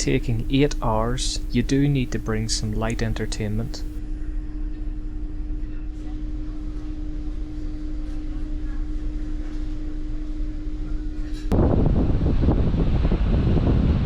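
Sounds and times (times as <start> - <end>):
ferry machinery drone: 0.0 - 4.0.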